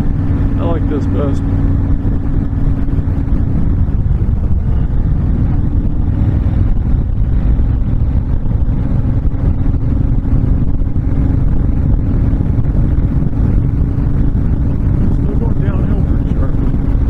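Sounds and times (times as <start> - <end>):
motorcycle engine rumbling: 0.0 - 17.0.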